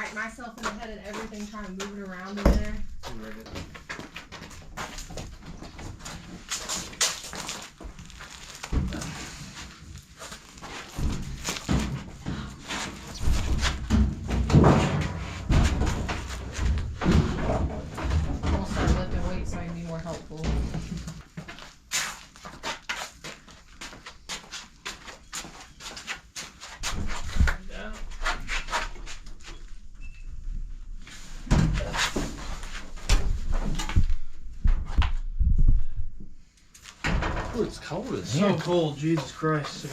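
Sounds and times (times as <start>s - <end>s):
heavy thuds: 10.9s - 21.1s
appliance knocking and scraping: 13.2s - 20.9s.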